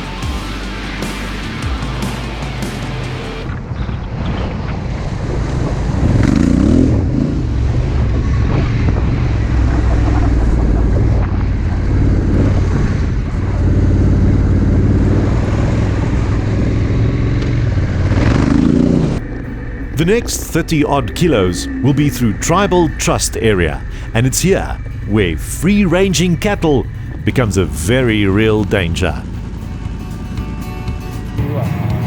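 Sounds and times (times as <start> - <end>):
road and wind noise: 1.9 - 31.4
motorcycle engine accelerating: 5.2 - 20.0, 26.8 - 27.3.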